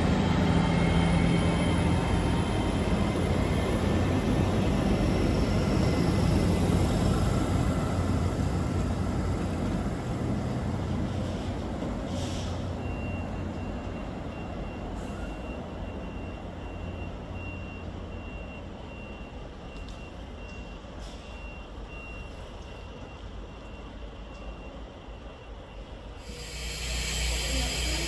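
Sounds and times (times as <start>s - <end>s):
train rumbling away: 0.0s - 16.6s, 25.9s - 28.0s.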